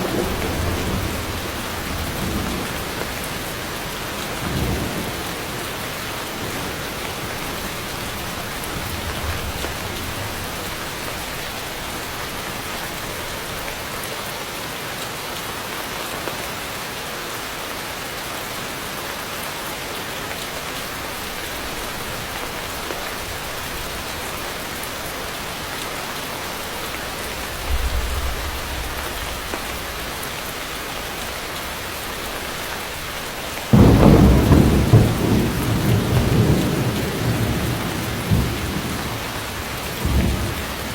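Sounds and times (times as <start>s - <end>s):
loud rolling thunderclap: 0.0s - 11.8s, 27.4s - 30.0s, 33.7s - 40.9s
low thunder rumbles: 0.0s - 13.6s, 27.0s - 30.3s, 33.7s - 40.9s
heavy rain falling: 0.0s - 40.9s.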